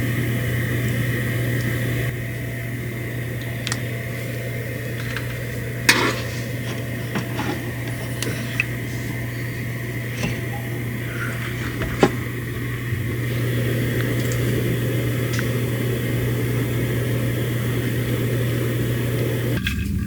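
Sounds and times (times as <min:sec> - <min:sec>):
mechanical hum with high whine: 0:00.0 - 0:20.0.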